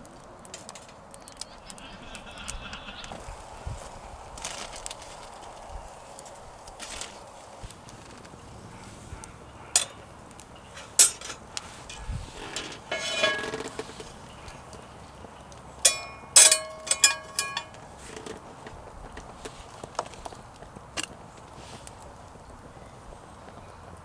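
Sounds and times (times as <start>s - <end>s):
cooking gear clinking: 0.3s - 1.7s, 9.7s - 20.2s
cooking gear knocking: 9.7s - 14.3s, 15.8s - 21.2s.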